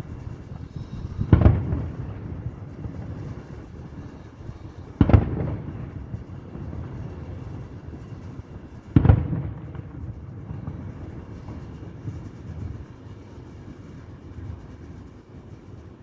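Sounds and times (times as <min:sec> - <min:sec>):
fireworks shells booming: 0:00.1 - 0:08.2.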